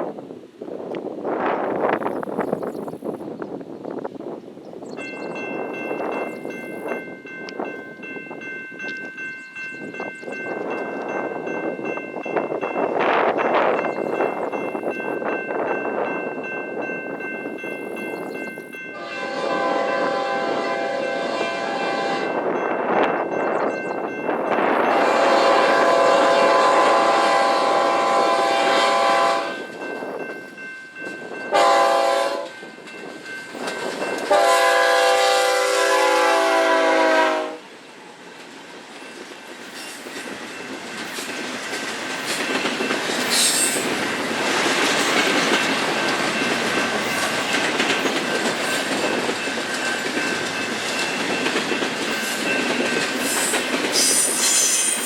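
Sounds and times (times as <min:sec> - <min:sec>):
train wheels on rails: 0:00.0 - 0:55.0
locomotive air horn blasts: 0:18.9 - 0:22.5, 0:24.9 - 0:29.7, 0:31.5 - 0:32.6, 0:34.3 - 0:37.7.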